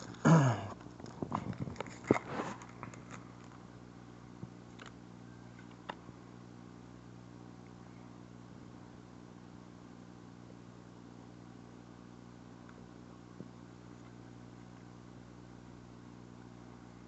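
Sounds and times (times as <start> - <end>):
foil pack tearing and crinkling: 1.0 - 3.6.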